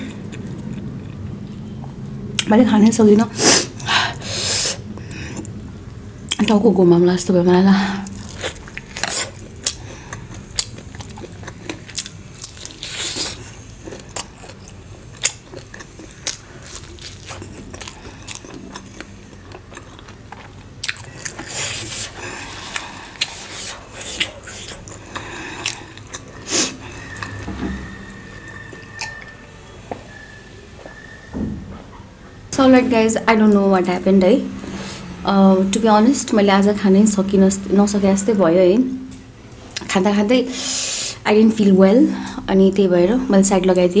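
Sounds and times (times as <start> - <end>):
chewing and biting food: 8.1 - 27.4.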